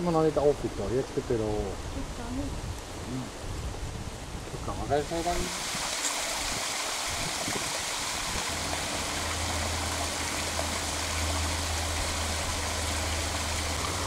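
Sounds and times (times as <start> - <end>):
running water rushing: 0.0 - 14.0
low steady hum: 7.9 - 14.0.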